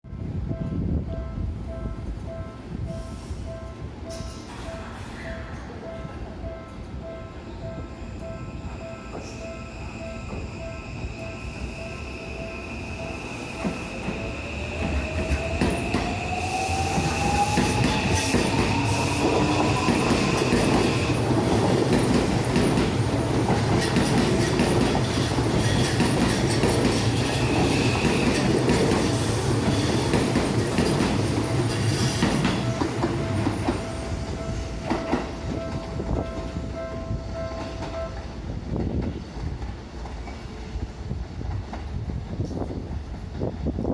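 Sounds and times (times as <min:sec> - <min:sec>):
train wheels rolling on track: 0:00.2 - 0:43.9.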